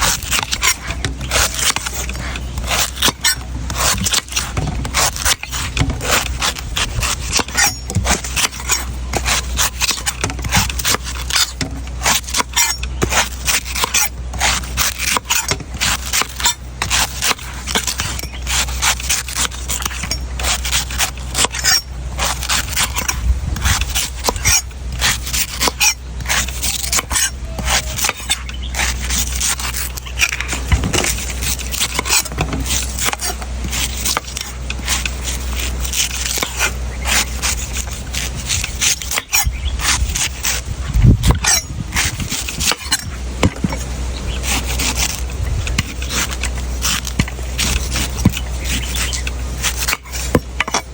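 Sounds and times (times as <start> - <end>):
knife chopping coconut: 0.0 - 50.9
steady low hum: 0.0 - 50.9.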